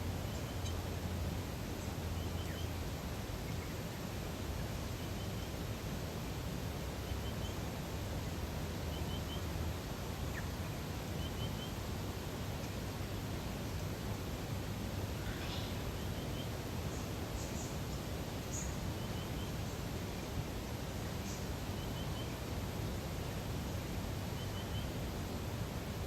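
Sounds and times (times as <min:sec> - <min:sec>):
soft hiss of outdoor air: 0:00.0 - 0:26.0
small birds calling: 0:07.0 - 0:11.9, 0:15.1 - 0:22.7, 0:23.7 - 0:25.1.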